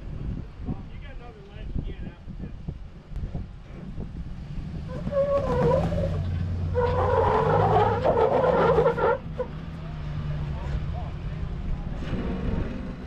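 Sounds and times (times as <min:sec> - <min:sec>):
pickup engine under load: 0:03.6 - 0:13.0
tyres squealing and scraping: 0:04.8 - 0:10.2.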